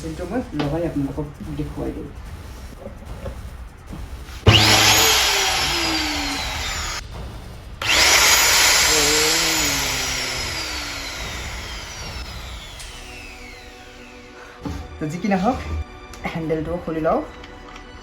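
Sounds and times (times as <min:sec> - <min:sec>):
angle grinder motor whining: 0:04.5 - 0:07.0, 0:07.8 - 0:14.4.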